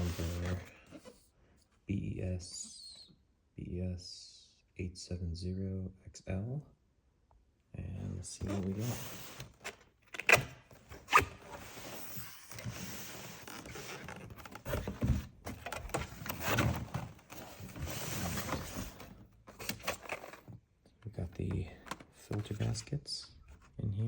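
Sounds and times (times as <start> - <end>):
packaging scraping and rustling: 0.0 - 1.2, 8.4 - 20.6.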